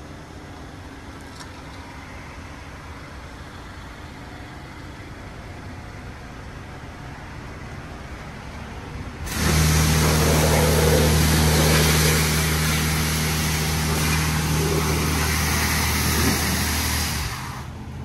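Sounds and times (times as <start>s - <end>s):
car engine idling: 9.2s - 18.0s
car wash machinery starting: 9.2s - 18.0s.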